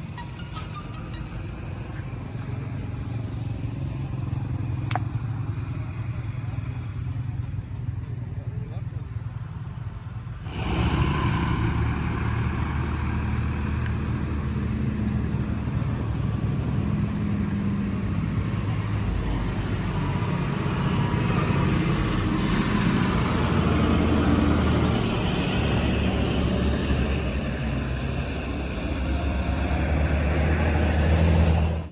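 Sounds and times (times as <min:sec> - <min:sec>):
vehicle engine rumbling: 0:00.0 - 0:31.9.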